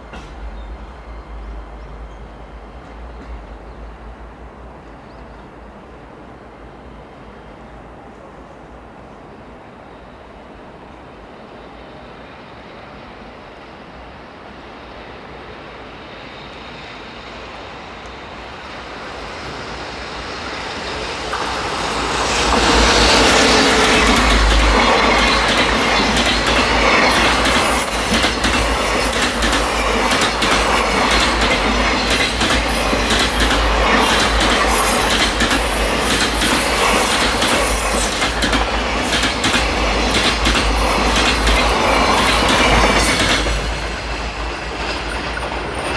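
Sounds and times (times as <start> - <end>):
freight train wheels rumbling: 0.0 - 6.4, 11.7 - 45.9
wheels clicking over rail joints: 21.3 - 44.1.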